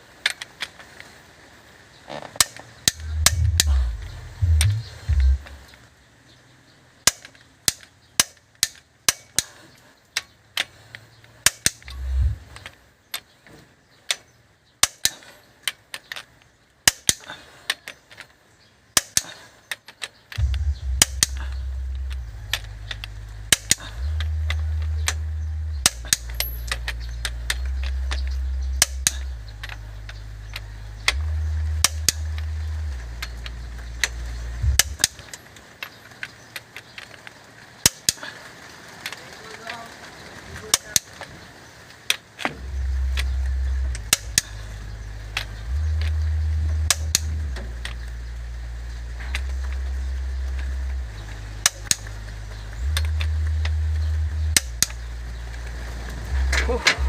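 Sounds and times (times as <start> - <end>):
sharp irregular clicks and knocks: 2.1 - 5.8, 7.0 - 38.4, 40.5 - 57.0
loud deep hum stepping pitches: 2.9 - 5.7, 11.9 - 12.6, 20.4 - 35.3, 42.6 - 57.0.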